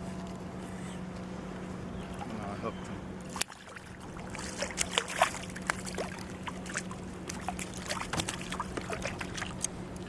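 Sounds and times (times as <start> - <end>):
steady low hum: 0.0 - 10.0
water splashing and dripping: 3.3 - 9.7.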